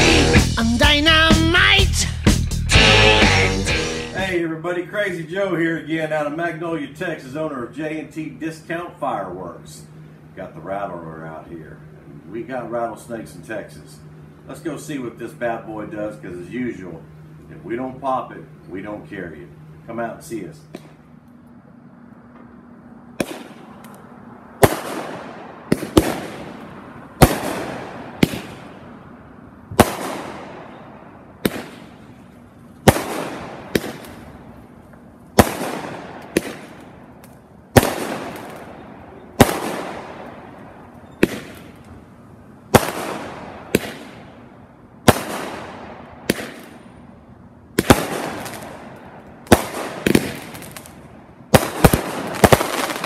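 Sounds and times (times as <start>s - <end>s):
firework bangs: 23.2s - 23.8s, 24.6s - 29.0s, 29.7s - 32.2s, 32.8s - 34.6s, 35.4s - 41.9s, 42.7s - 46.9s, 47.8s - 53.0s
firework hiss: 51.6s - 53.0s.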